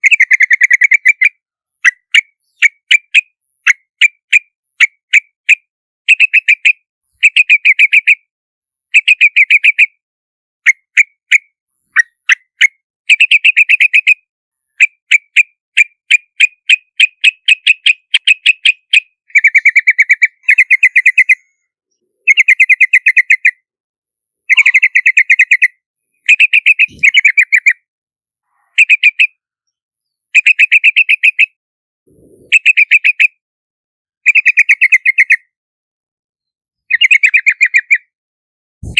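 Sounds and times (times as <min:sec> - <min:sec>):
bird chattering calls: 0:00.0 - 0:08.2, 0:16.4 - 0:21.5, 0:24.5 - 0:25.7, 0:26.3 - 0:27.8, 0:32.1 - 0:33.3.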